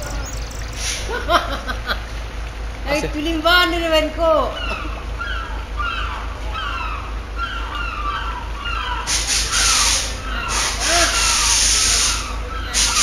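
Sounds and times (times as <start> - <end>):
birds chirping: 0.0 - 13.0
loud rushing hiss: 0.6 - 1.3, 9.1 - 13.0.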